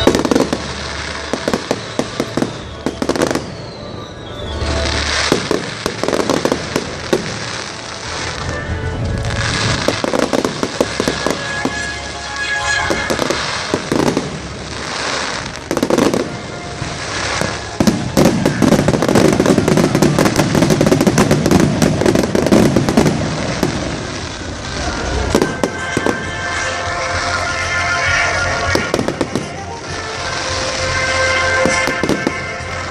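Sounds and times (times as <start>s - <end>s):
fireworks bangs and crackling: 0.0s - 32.9s.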